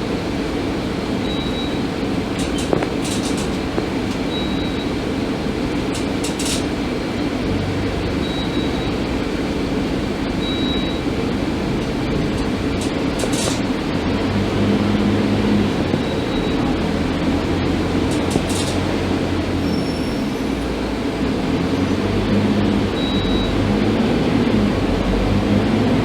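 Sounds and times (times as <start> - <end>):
bus engine and road rumble: 0.0 - 26.0
short rattles: 2.4 - 4.3.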